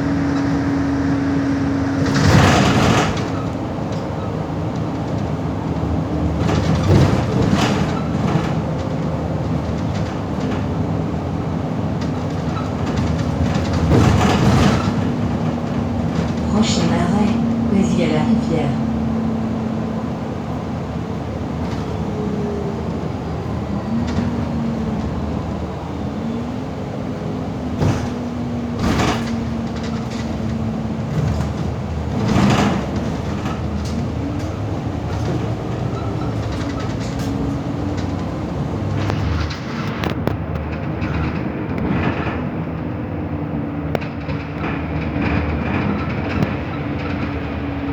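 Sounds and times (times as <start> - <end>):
bus drivetrain hum: 0.0 - 47.9
body rattles and knocks: 1.4 - 16.5.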